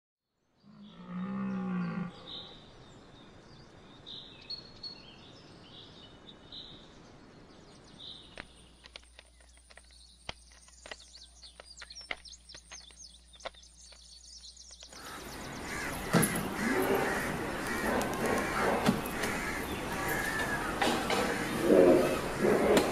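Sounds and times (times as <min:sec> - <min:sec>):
outdoor background noise: 0:00.2 - 0:22.9
deer stag roaring: 0:15.6 - 0:22.9.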